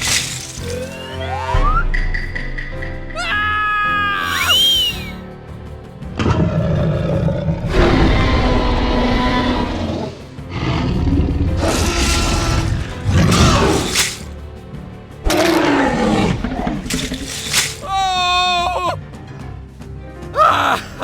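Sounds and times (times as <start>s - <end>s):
background music: 0.0s - 21.0s
cartoon dinosaur roars: 6.3s - 14.0s.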